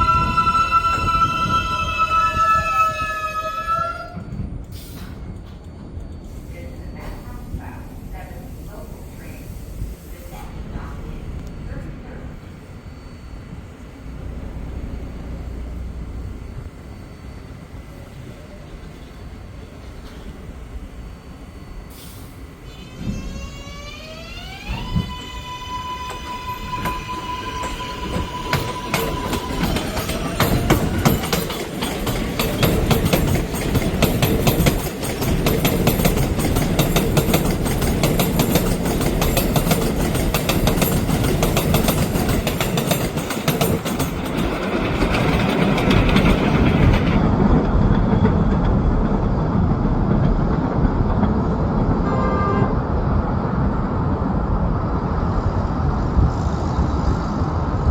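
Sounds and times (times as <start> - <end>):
train rumbling past: 0.0 - 57.9
traction motors whining: 10.5 - 47.8
wheel clatter over rail joints: 26.1 - 51.9.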